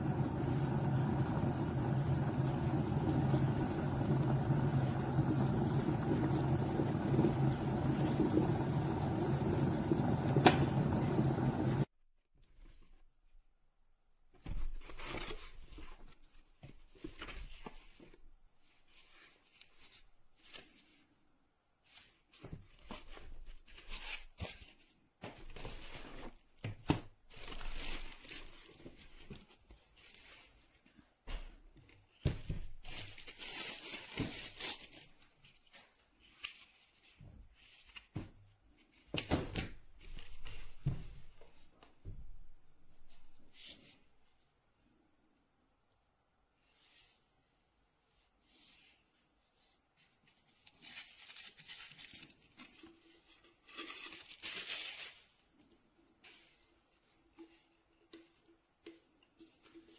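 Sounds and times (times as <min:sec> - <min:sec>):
rustling and crinkling: 0:21.8 - 0:44.4, 0:46.6 - 0:59.9.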